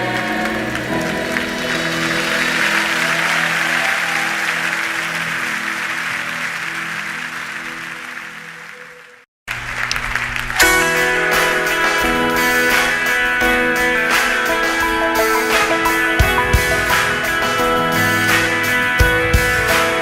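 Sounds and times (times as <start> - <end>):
audience applauding: 0.0 - 20.0
instruments playing: 10.6 - 18.9
held instrumental chord: 10.6 - 20.0.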